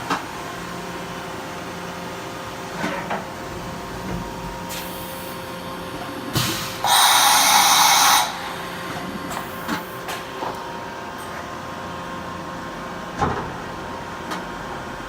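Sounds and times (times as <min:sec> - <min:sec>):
machining center humming: 0:05.5 - 0:11.2
machine hiss: 0:06.3 - 0:10.2.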